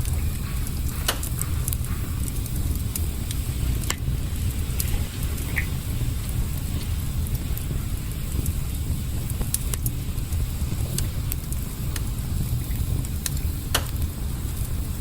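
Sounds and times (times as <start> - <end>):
campfire crackling: 0.0 - 15.0
chicken sizzling over fire: 0.0 - 15.0
low rumble: 0.0 - 15.0
sharp pops: 0.8 - 2.6, 13.2 - 14.0.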